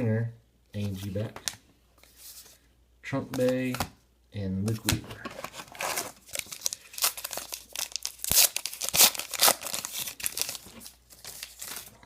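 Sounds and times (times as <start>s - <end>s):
wrapper tearing and crinkling: 5.4s - 12.0s.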